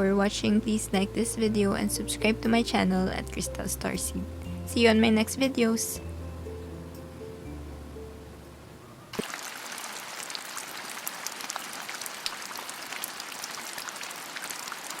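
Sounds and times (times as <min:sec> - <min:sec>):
background music: 0:00.0 - 0:09.2
rain-like patter with sharp ticks: 0:09.1 - 0:15.0.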